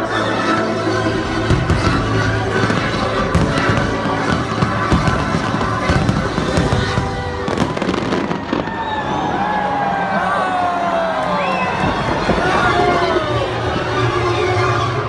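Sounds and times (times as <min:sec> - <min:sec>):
loud music over sound system: 0:00.0 - 0:07.6
fireworks bursting: 0:00.7 - 0:10.2, 0:11.0 - 0:15.0.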